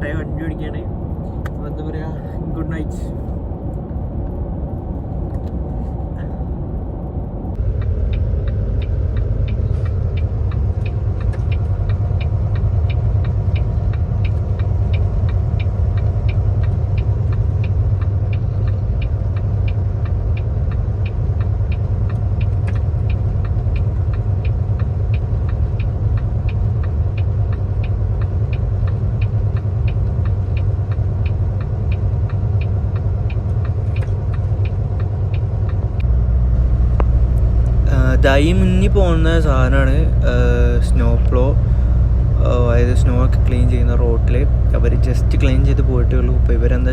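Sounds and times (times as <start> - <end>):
truck engine and road rumble: 0.0 - 46.9
faint regular ticking: 7.5 - 46.9.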